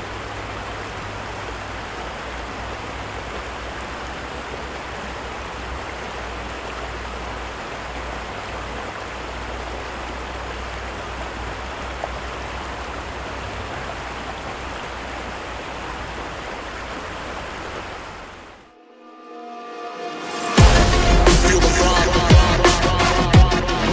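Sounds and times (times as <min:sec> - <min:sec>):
heavy rain falling: 0:00.0 - 0:18.7.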